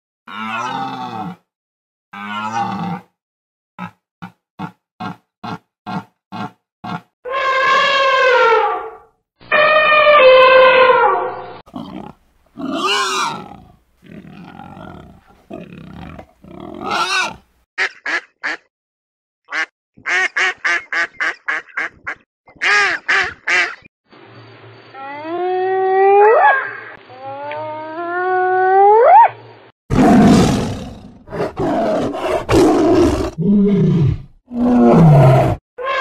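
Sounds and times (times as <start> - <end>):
drawn-out animal cries: 9.5 - 11.1.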